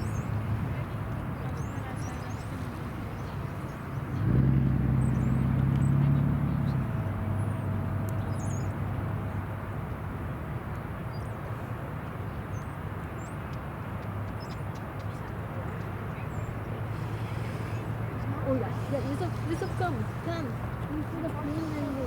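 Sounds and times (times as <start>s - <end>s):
small birds chirping: 0.0s - 4.3s, 5.0s - 8.8s, 12.3s - 22.0s
low engine rumble: 0.0s - 10.6s, 15.1s - 22.0s.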